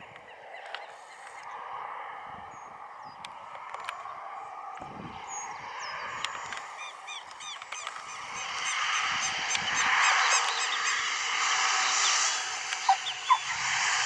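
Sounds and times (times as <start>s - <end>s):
broad rush of noise: 0.0s - 14.0s
birds giving high calls: 5.1s - 14.0s.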